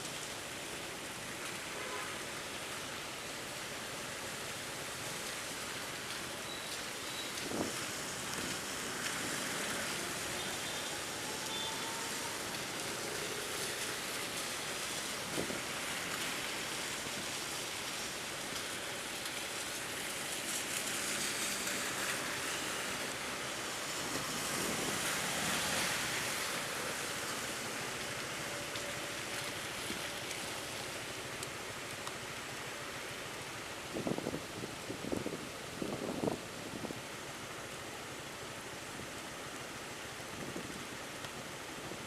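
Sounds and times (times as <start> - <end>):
steady rain: 0.0 - 42.0
wind noise: 7.4 - 8.7, 15.2 - 15.8, 33.9 - 37.1, 40.3 - 40.9.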